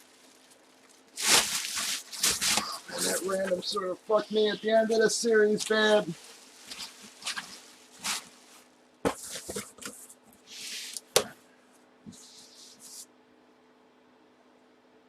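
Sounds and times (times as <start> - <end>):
handling rustles and swishes: 0.0 - 3.4, 5.6 - 11.3.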